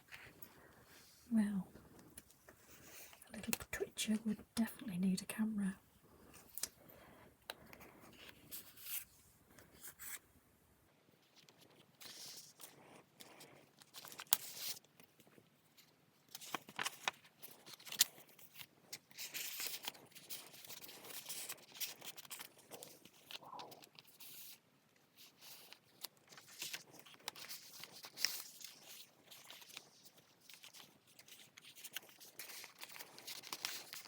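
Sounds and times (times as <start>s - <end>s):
paper rustling and crinkling: 11.2s - 34.0s.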